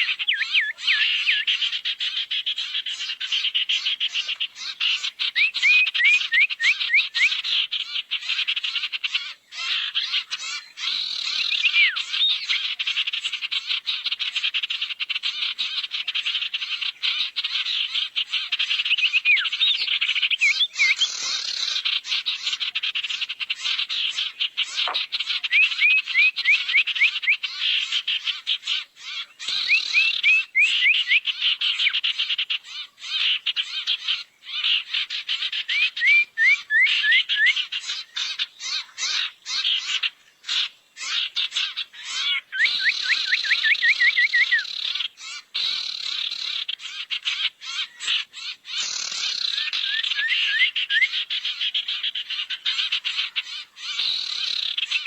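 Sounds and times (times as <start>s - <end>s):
birds whistled notes: 0.0s - 8.8s, 9.5s - 13.6s, 15.8s - 55.0s
birds rattling chatter: 7.8s - 26.0s, 44.7s - 55.0s.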